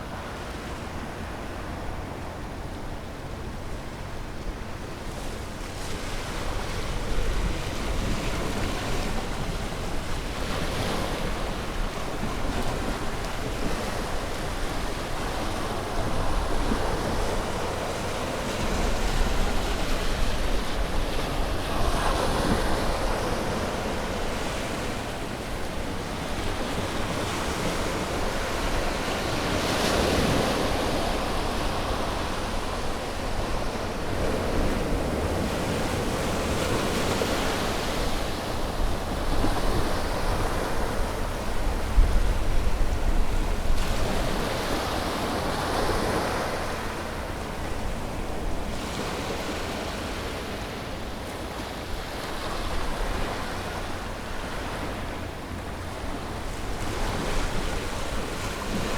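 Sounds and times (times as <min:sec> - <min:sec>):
ocean waves breaking on shore: 0:00.0 - 0:58.9.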